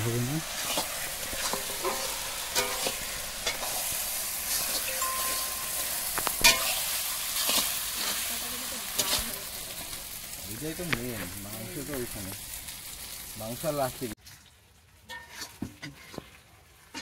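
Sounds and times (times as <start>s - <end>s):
chicken sizzling in a pan: 0.0s - 16.1s
utensil scraping and knocking pan: 0.6s - 7.6s.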